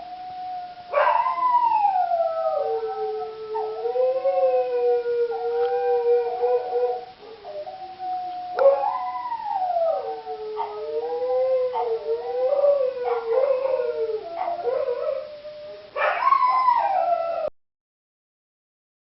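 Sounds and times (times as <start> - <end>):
dogs howling: 0.0 - 17.5.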